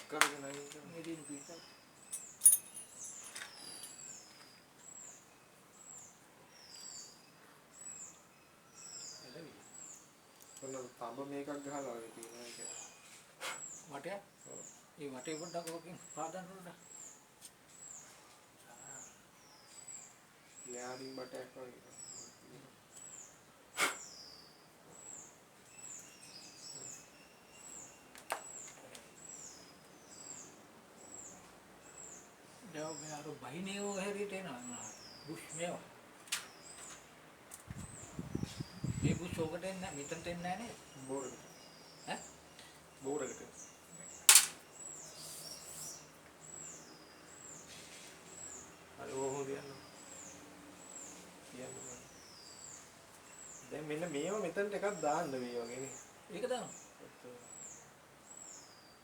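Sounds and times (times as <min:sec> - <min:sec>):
small bird chirping: 0:00.7 - 0:35.8, 0:36.4 - 0:59.0
sharp clicks: 0:44.3 - 0:44.6.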